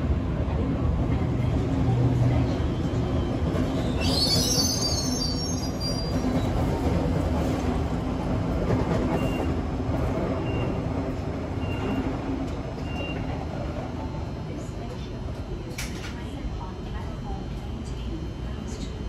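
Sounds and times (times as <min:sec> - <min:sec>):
rumble of train wheels on rails: 0:00.0 - 0:19.0
train wheels squealing on curve: 0:03.6 - 0:06.6.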